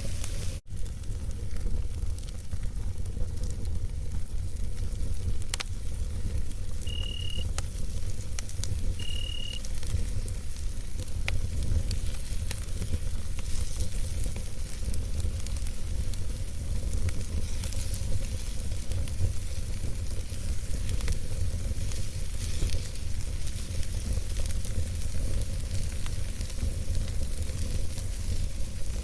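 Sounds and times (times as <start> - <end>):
campfire low rumble: 0.0 - 29.0
wood crackling and popping: 0.0 - 29.0
short high steady tones: 6.8 - 7.4, 9.0 - 9.6.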